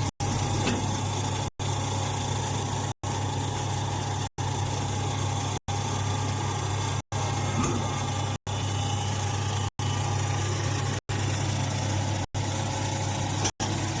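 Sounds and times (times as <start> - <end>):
hay baler humming: 10.6 - 14.0.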